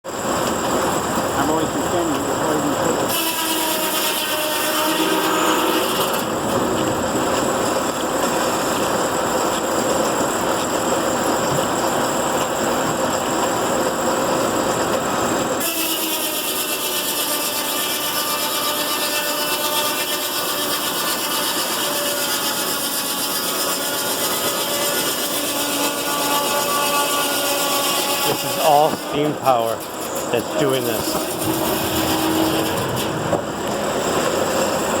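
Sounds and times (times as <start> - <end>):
sawmill saw cutting wood: 1.4 - 6.8, 15.6 - 35.0.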